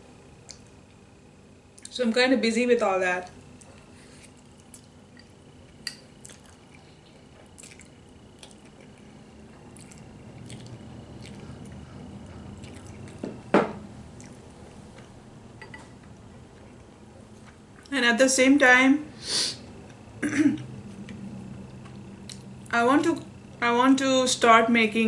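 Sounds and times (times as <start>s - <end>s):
person chewing food: 3.6s - 17.9s, 20.9s - 22.6s.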